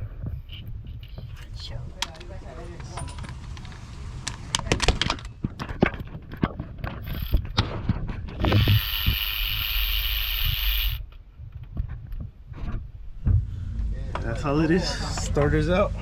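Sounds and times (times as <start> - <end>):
cordless electric ratchet running: 8.4 - 11.0.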